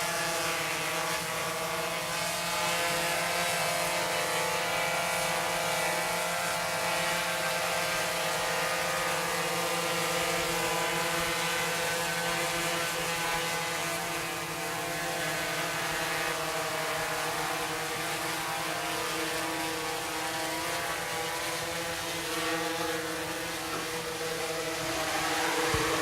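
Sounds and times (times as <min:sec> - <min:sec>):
drone propellers whining: 0:21.3 - 0:26.0.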